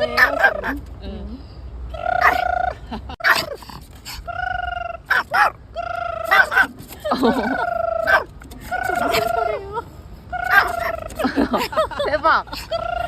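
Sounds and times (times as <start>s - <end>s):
dog yipping: 0.0s - 0.8s, 2.2s - 2.5s, 3.2s - 4.3s, 5.0s - 5.6s, 6.2s - 9.6s, 10.4s - 11.2s.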